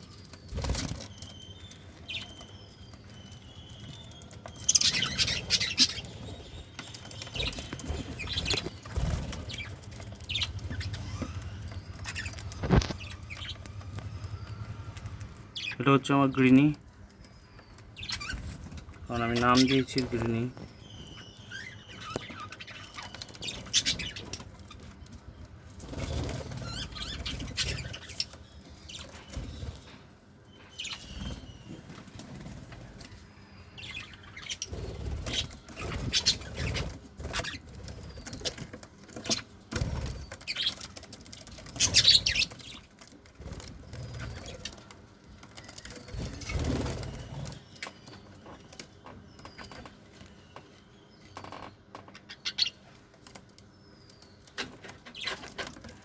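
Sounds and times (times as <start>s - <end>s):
high bird chirps: 0.0s - 30.0s
wings flapping: 6.9s - 14.4s, 33.9s - 44.9s, 45.6s - 47.6s.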